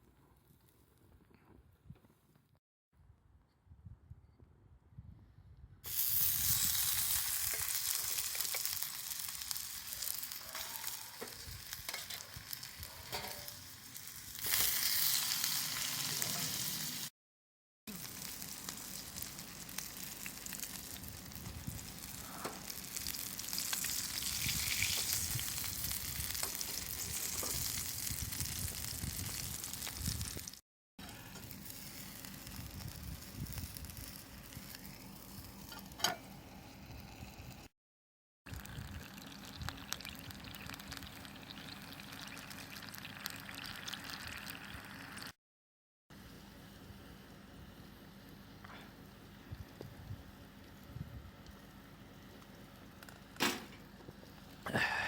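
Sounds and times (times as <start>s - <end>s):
food sizzling in a pan: 5.9s - 17.1s, 17.9s - 30.6s.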